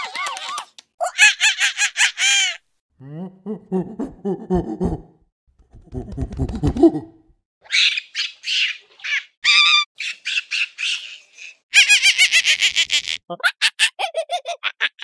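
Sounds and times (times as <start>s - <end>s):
monkeys calling: 7.7s - 14.2s.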